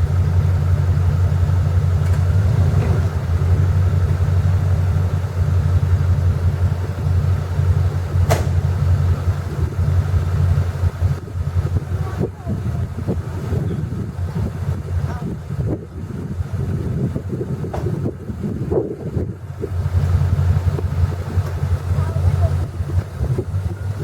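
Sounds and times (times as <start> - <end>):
truck engine rumbling: 0.0 - 24.0
sharp click: 8.2 - 8.6.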